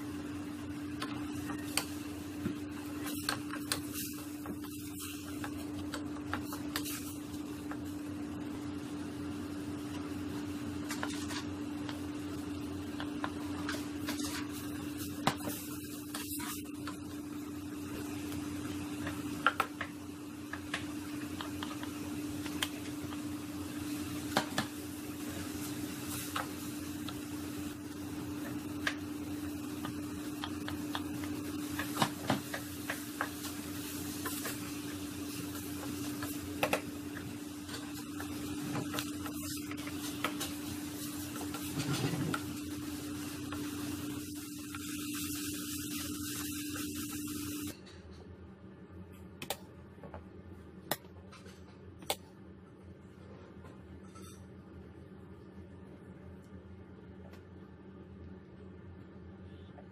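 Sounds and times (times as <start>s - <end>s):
steady hum: 0.0s - 59.9s
meat and vegetables sizzling: 1.1s - 47.7s.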